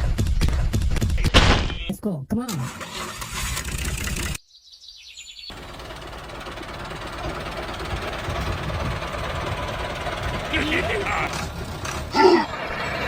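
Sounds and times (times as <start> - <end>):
tractor engine running: 2.6 - 4.4, 5.5 - 13.0.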